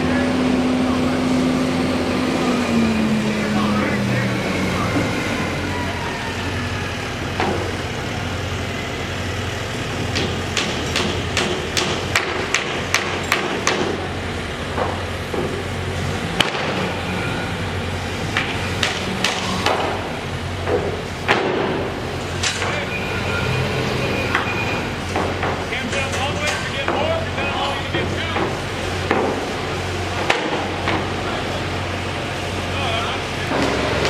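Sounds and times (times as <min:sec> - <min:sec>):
machine hum: 0:00.0 - 0:34.0
sharp knocks: 0:10.1 - 0:14.1, 0:16.3 - 0:16.9, 0:18.3 - 0:22.8.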